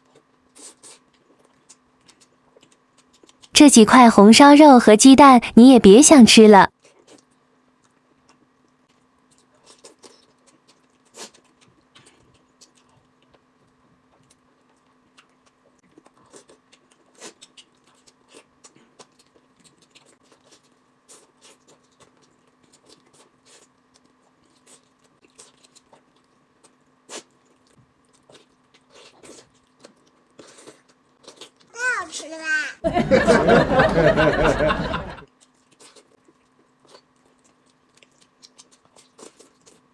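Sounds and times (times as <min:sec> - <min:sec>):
person chewing mouth clicks: 0:00.0 - 0:03.5, 0:06.8 - 0:31.7, 0:35.2 - 0:39.9
faint steady hum: 0:32.8 - 0:39.9.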